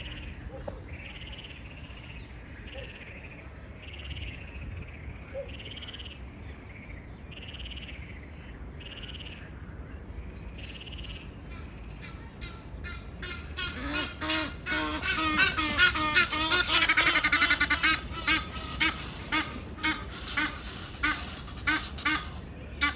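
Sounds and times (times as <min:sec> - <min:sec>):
geese honking: 0:12.4 - 0:22.9
frogs trilling: 0:13.6 - 0:22.9.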